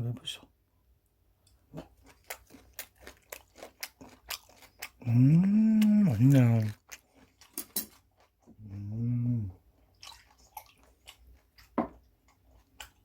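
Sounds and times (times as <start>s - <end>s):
person chewing with crunching: 1.7s - 13.0s
person humming mmm: 5.0s - 6.8s, 8.6s - 9.6s.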